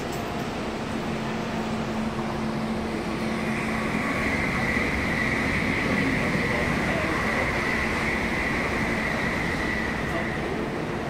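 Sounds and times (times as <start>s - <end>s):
high steady whine: 0.0s - 11.0s
train low hum: 0.0s - 11.0s.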